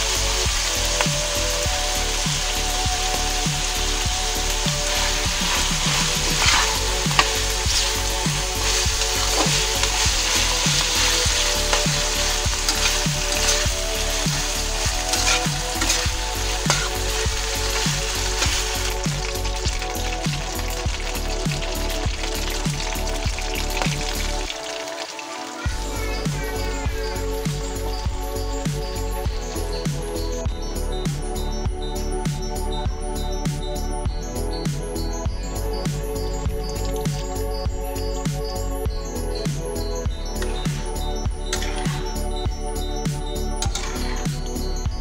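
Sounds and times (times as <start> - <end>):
food sizzling in a wok: 0.0 - 31.2
ladle scraping the pan: 4.9 - 19.3.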